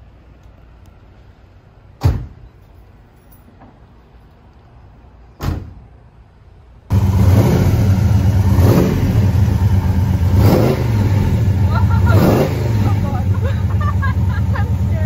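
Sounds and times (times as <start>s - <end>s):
thump: 2.0s - 2.4s, 5.4s - 5.8s
loud engine revving: 6.9s - 15.0s.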